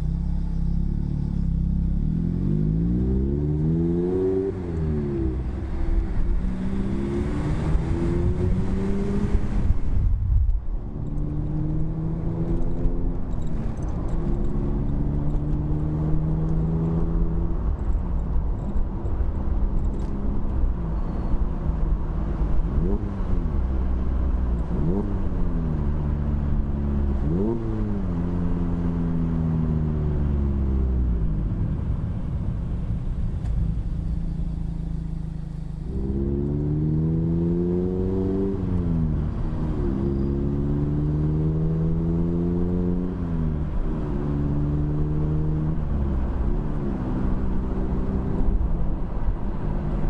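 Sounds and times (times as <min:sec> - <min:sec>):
car engine revving: 0:00.0 - 0:10.0, 0:33.0 - 0:50.0.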